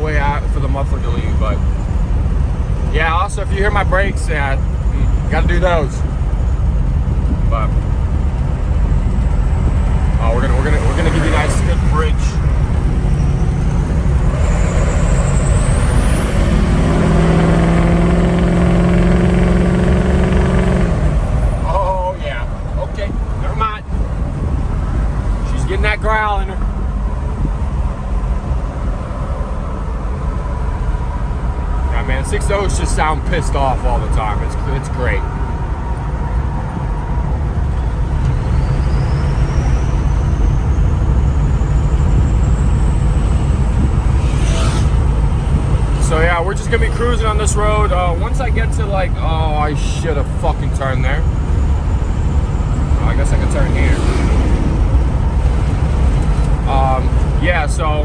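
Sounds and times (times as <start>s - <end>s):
diesel engine growl: 0.0s - 58.0s
turbo whistle rising in pitch: 10.8s - 18.2s, 38.2s - 45.1s
turbo whistle: 38.3s - 42.7s.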